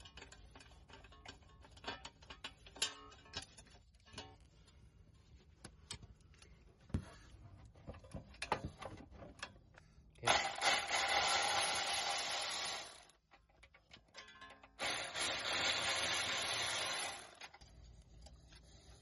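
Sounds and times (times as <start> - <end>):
tools clicking and knocking: 0.0 - 4.5, 13.1 - 14.8.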